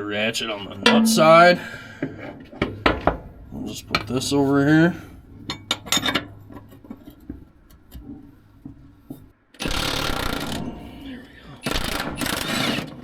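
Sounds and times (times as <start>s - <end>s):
metal tools clinking: 0.6s - 9.2s
pneumatic tool running: 9.6s - 13.0s.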